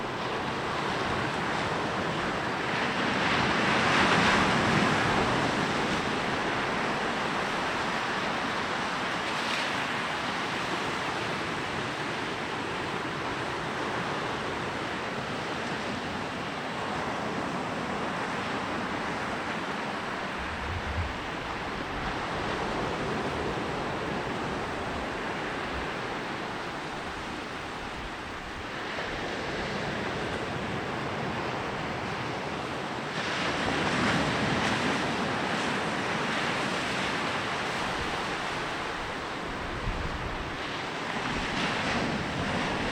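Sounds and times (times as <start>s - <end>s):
sea waves breaking on beach: 0.0s - 42.9s.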